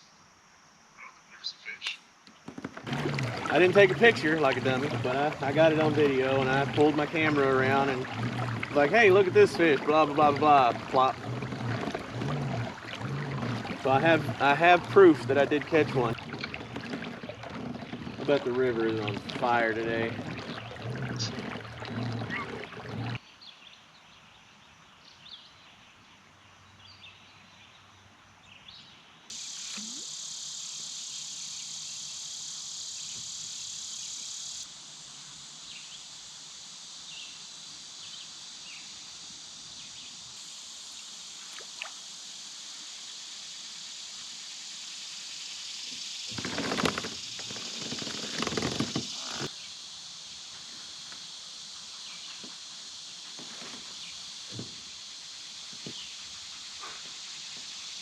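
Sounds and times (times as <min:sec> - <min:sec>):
high-pitched insect chorus: 0:00.0 - 0:21.6, 0:29.3 - 0:58.0
faint bird chirps: 0:00.9 - 0:02.1
rustling and knocking: 0:02.3 - 0:05.1, 0:46.3 - 0:49.5.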